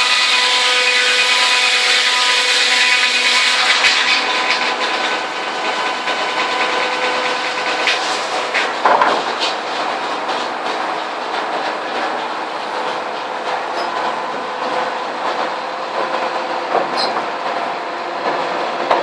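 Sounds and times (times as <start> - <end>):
saw blade cutting through log: 0.0 - 9.7.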